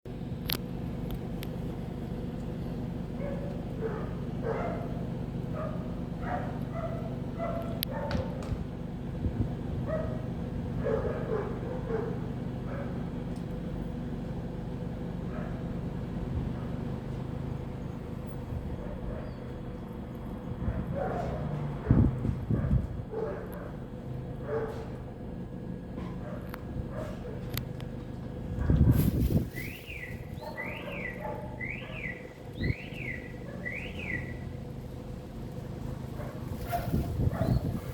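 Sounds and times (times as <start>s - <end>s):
low background rumble: 0.1s - 37.9s
steady low hum: 0.1s - 37.9s
gull barking calls: 3.1s - 8.5s, 29.6s - 34.7s
bird calling: 29.3s - 34.7s.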